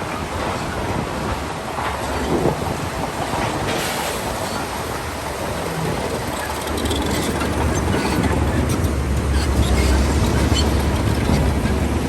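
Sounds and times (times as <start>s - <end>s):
bulldozer engine rumbling: 0.0s - 12.0s
steel tracks clattering: 0.0s - 12.0s
track links squeaking: 5.7s - 12.0s.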